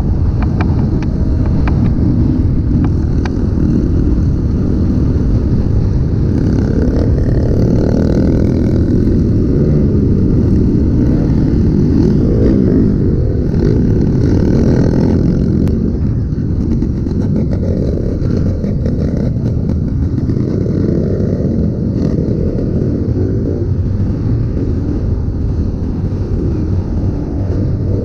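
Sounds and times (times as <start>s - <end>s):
dirt bike engine revving: 2.8s - 24.9s.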